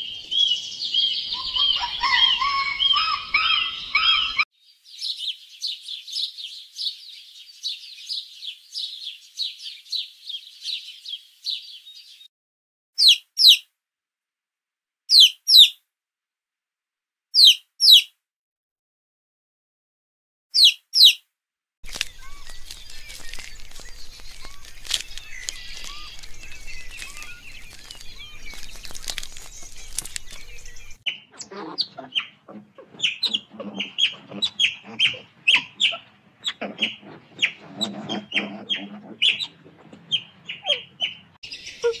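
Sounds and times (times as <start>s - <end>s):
birds chirping: 0.0s - 12.3s, 21.8s - 42.0s.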